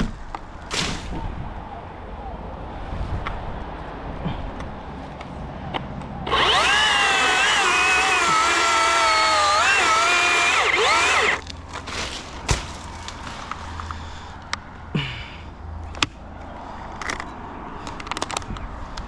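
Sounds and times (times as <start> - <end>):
chainsaw cutting wood: 6.3 - 13.4.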